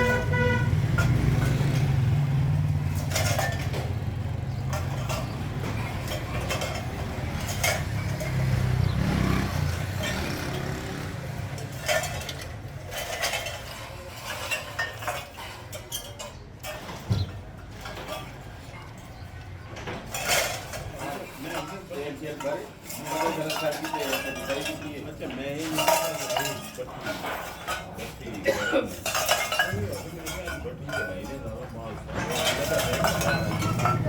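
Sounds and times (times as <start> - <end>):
vehicle engine rumbling: 0.0 - 22.1, 29.0 - 34.0
light metal clanks: 0.0 - 34.0.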